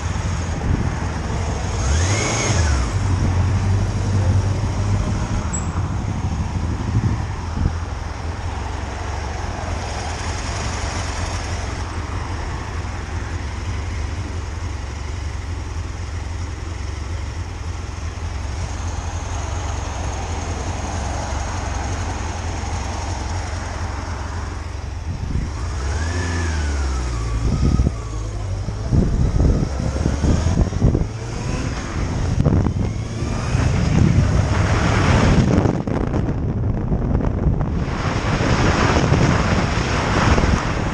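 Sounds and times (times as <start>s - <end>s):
wind rush: 0.0s - 11.2s, 24.9s - 40.9s
motorcycle engine drone: 0.0s - 40.9s.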